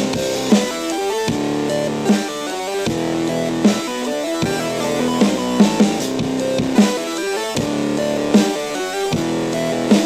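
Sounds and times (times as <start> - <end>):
steady drum beat: 0.0 - 10.0
plucked melody: 3.0 - 6.9.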